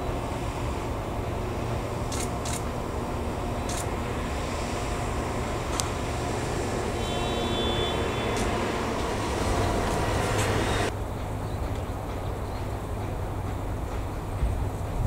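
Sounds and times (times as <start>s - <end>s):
locomotive low rumble: 0.0s - 15.0s
sharp clicks: 2.1s - 2.7s, 3.6s - 3.9s, 8.3s - 8.6s
high squeal: 6.6s - 10.9s.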